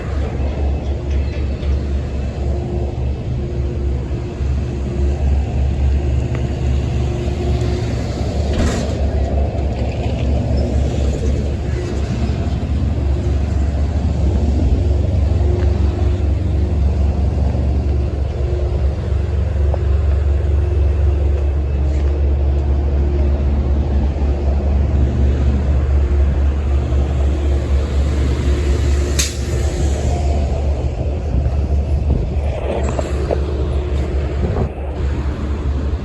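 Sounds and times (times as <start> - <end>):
vehicle driving rumble: 0.0 - 36.0
sharp click: 29.1 - 29.6.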